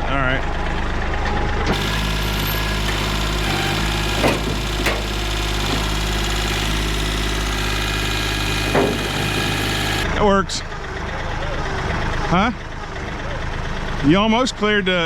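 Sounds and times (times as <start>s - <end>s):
tractor engine running: 1.6s - 10.3s
short knocks: 1.7s - 10.0s.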